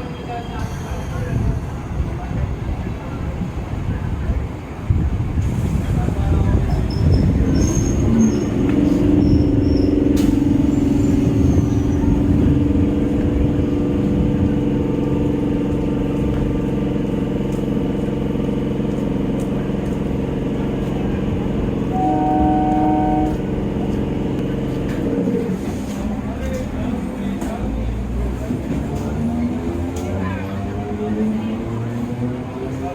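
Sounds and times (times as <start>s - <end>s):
train mechanical hum: 0.0s - 32.9s
low rumble: 5.0s - 25.8s
brief higher tone: 21.9s - 23.5s.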